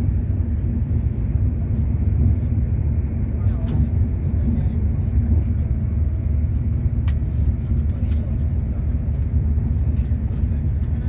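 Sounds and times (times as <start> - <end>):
train rumble from inside: 0.0 - 11.0.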